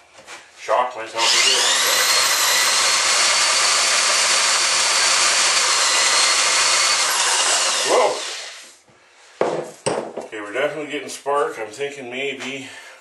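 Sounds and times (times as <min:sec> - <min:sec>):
small electric motor whining: 0:01.2 - 0:08.7.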